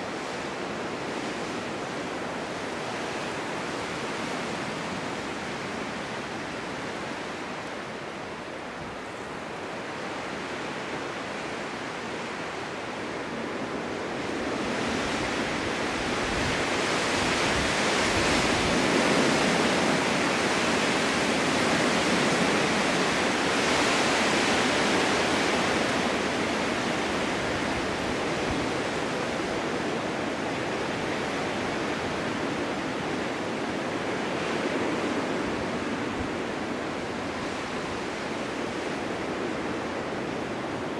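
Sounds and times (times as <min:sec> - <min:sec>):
strong wind gusting: 0:11.4 - 0:40.9.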